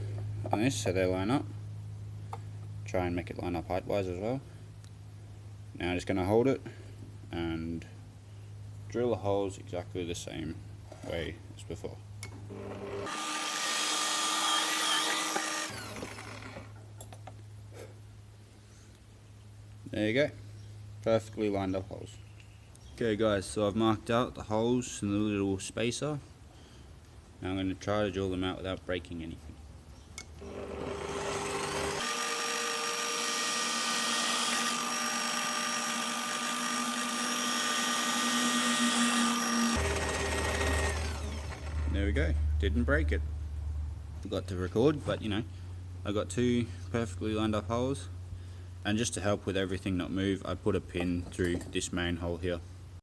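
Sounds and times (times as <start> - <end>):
electric drill boring wood: 12.5 - 16.7, 30.4 - 42.0.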